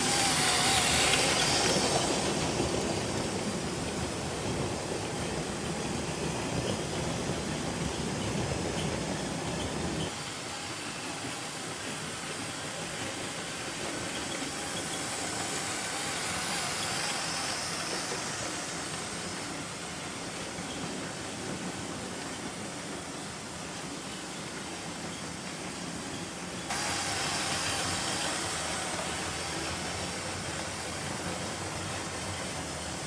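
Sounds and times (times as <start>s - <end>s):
electric motor whirring: 0.0s - 2.8s, 13.7s - 19.6s, 26.7s - 30.7s
toy train wheels rolling on rails: 0.0s - 33.0s.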